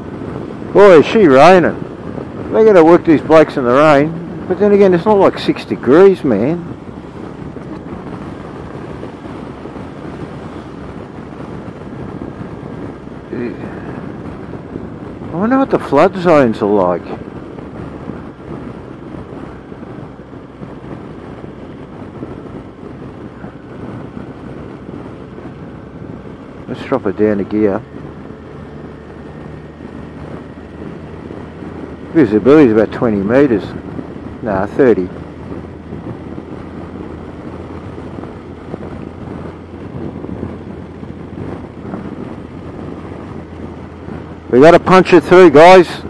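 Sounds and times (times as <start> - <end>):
motorcycle engine rumble: 0.0 - 46.0
tyres on wet road: 0.0 - 46.0
wind buffeting microphone: 0.0 - 46.0.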